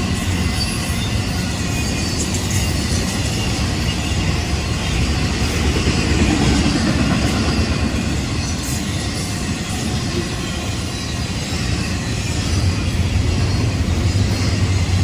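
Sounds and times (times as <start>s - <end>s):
freight train cars rolling past: 0.0s - 15.0s.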